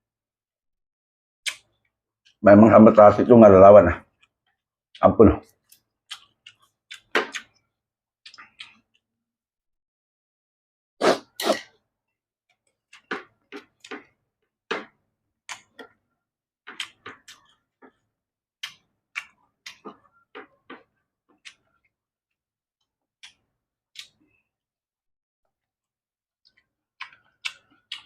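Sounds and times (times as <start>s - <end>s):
chewing and mouth smacking: 5.4s - 9.1s, 16.7s - 22.0s, 23.2s - 24.4s, 26.4s - 28.0s.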